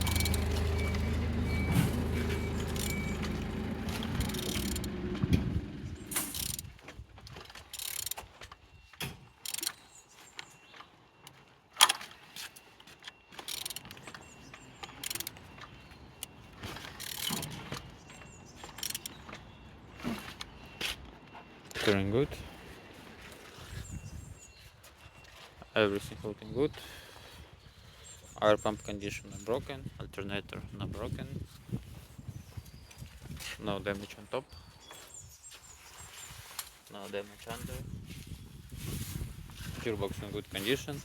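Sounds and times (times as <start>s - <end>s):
engine humming: 0.0s - 6.7s, 13.4s - 20.6s.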